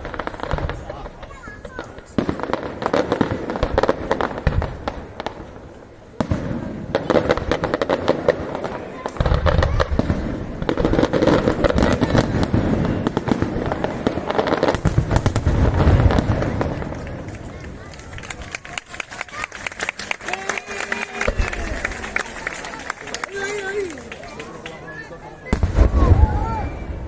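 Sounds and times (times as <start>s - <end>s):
deep firework booms: 0.0s - 17.9s, 25.5s - 27.0s
fireworks crackling and popping: 0.0s - 27.0s.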